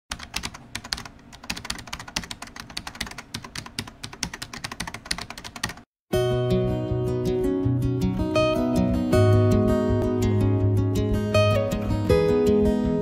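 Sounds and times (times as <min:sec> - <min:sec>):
fast typing on keyboard: 0:00.1 - 0:05.9
strummed acoustic guitar music: 0:06.1 - 0:13.0.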